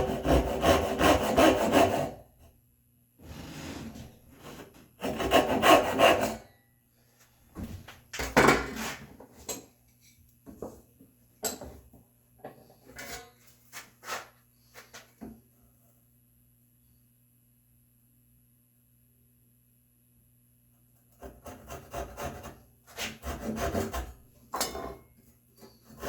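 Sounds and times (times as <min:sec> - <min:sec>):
hand saw cutting wood: 0:00.0 - 0:02.2, 0:04.6 - 0:06.5, 0:21.2 - 0:24.2, 0:25.7 - 0:26.0.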